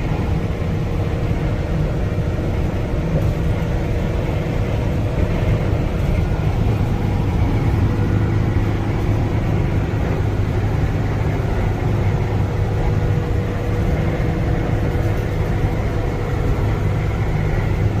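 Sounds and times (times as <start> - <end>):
truck engine rumbling: 0.0 - 18.0.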